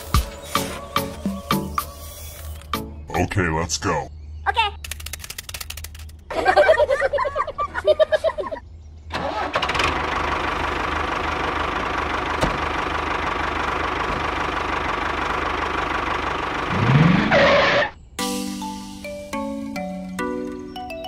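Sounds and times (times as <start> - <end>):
small tractor engine running: 9.2 - 17.9.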